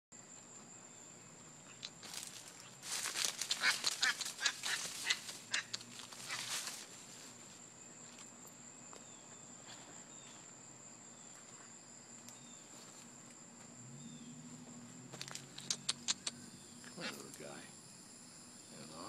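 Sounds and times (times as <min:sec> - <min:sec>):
high insect drone: 0:00.1 - 0:19.0
bird quacking calls: 0:03.5 - 0:06.5.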